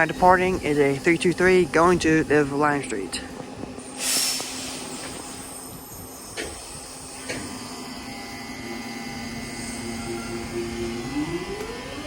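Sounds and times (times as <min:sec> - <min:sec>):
train electric hum: 0:00.0 - 0:12.0
brief hiss: 0:04.0 - 0:05.6
train knocks: 0:06.4 - 0:07.7.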